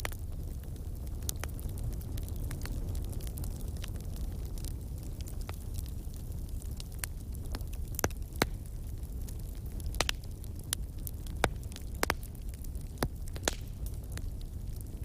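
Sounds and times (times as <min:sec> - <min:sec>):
low fire rumble: 0:00.0 - 0:15.0
wood fire crackling: 0:00.0 - 0:15.0.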